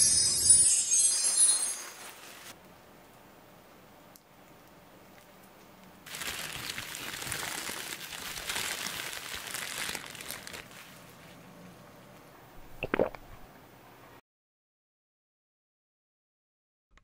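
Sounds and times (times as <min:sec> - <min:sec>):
bubble wrap crinkling: 0:01.0 - 0:02.6, 0:06.0 - 0:11.2.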